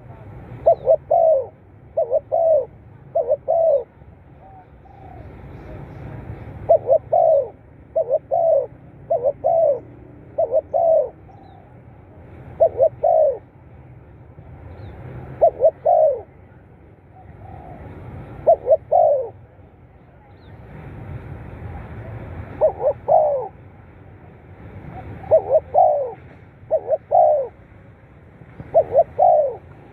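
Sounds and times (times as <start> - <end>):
dove cooing: 0.0 - 13.6, 15.2 - 16.5, 17.1 - 19.5, 22.5 - 23.6, 24.9 - 27.6, 28.6 - 29.9.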